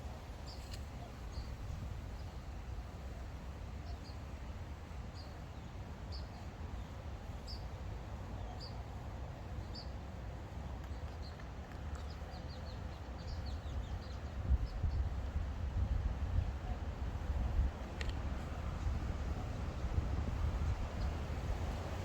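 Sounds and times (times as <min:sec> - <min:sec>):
wind rumbling on microphone: 0:13.2 - 0:22.0.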